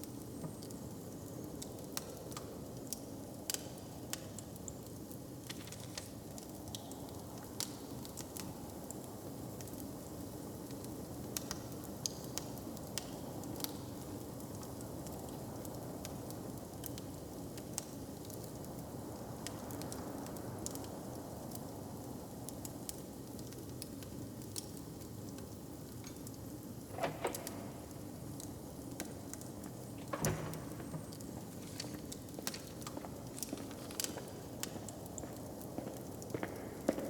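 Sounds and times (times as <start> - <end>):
wood fire crackling and popping: 0.0 - 37.0.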